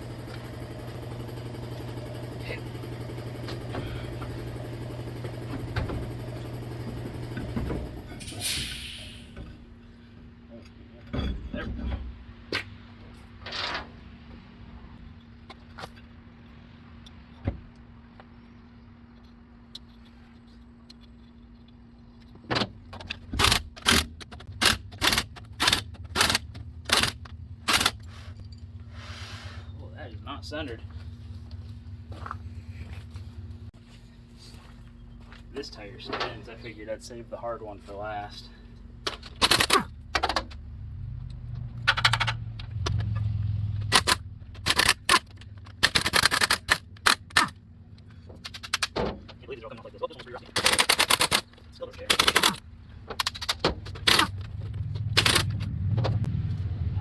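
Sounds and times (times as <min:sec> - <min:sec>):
impact wrench rattling: 0:23.0 - 0:28.1, 0:43.8 - 0:47.6, 0:48.2 - 0:49.3, 0:50.5 - 0:55.7
rattle of rapid clicks: 0:50.6 - 0:51.5, 0:52.1 - 0:52.6, 0:55.1 - 0:55.6.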